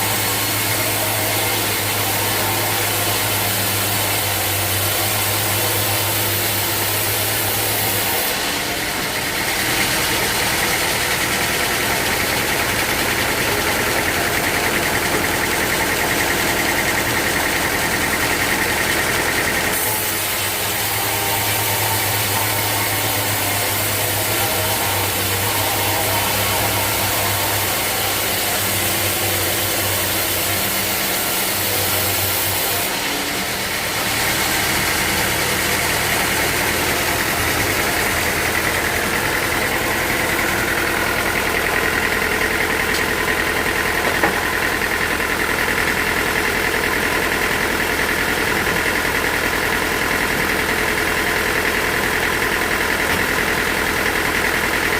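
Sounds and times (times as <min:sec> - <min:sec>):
sawmill machinery running: 0:00.0 - 0:54.9.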